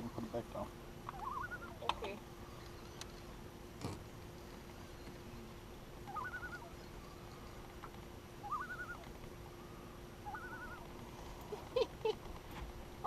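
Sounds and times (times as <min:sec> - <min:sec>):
faint hum: 0:00.0 - 0:13.0
bird calling with trill: 0:01.0 - 0:03.4, 0:06.0 - 0:07.7, 0:08.4 - 0:10.9.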